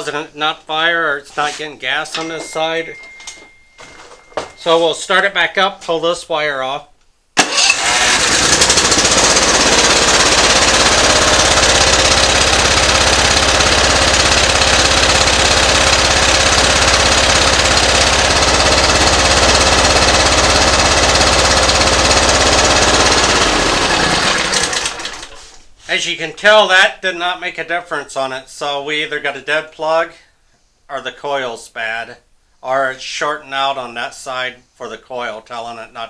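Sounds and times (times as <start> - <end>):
mower engine running roughly: 7.4 - 25.4.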